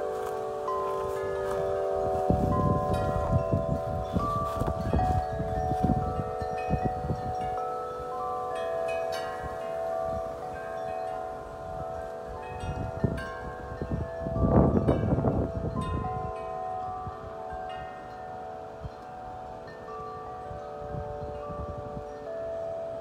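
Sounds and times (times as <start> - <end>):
wind chimes ringing: 0.0 - 23.0
wind rumbling on microphone: 0.0 - 23.0.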